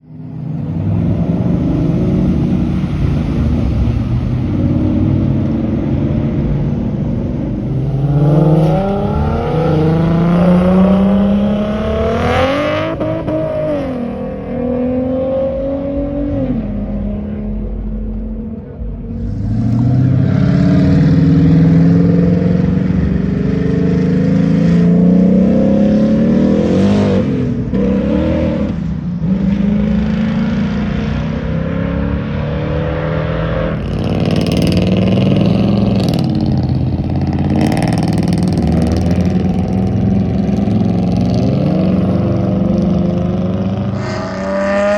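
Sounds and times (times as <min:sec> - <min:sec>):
car engines revving and accelerating: 0:00.0 - 0:44.9
high-pitched sweep: 0:01.6 - 0:23.3.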